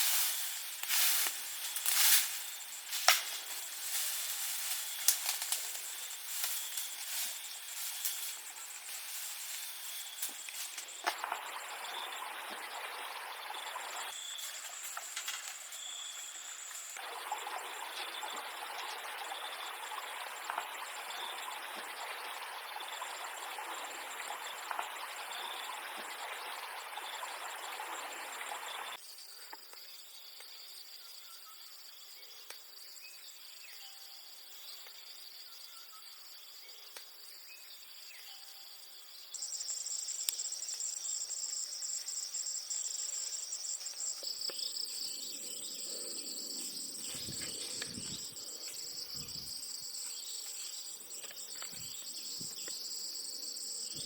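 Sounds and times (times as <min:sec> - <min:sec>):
insects chirping trills: 0:00.0 - 0:54.0
rushing water: 0:11.1 - 0:14.1, 0:17.0 - 0:29.0.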